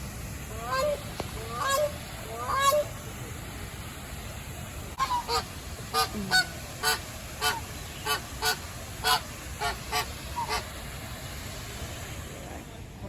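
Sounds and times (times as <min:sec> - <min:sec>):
bird honking: 0:00.6 - 0:02.9, 0:05.0 - 0:10.6.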